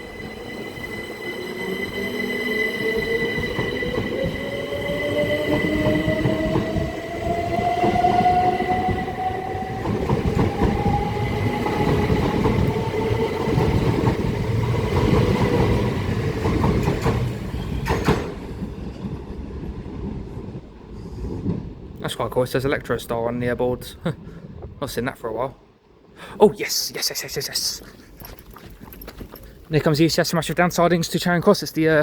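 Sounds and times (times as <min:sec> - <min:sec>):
train wheels rumbling: 0:00.0 - 0:23.2.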